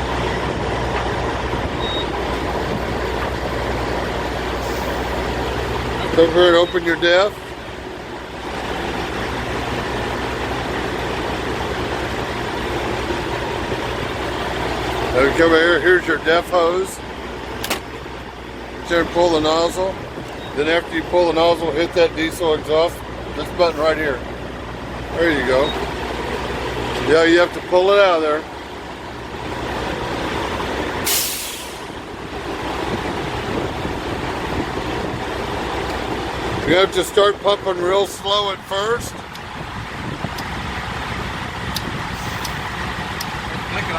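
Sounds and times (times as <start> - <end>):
diesel truck engine idling: 0.0 - 43.9
sharp hiss of air: 4.6 - 5.2, 31.0 - 32.0, 42.2 - 42.8.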